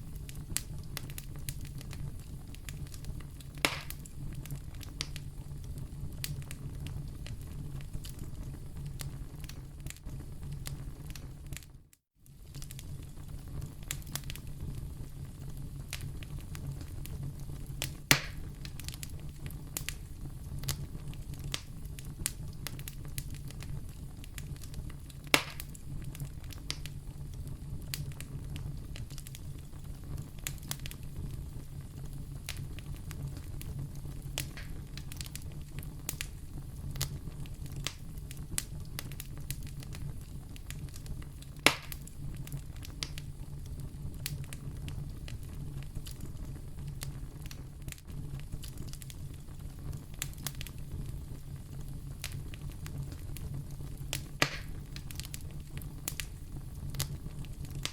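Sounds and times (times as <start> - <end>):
loud fire pops: 0.0 - 11.7, 12.3 - 57.9
fire crackling: 0.0 - 57.9.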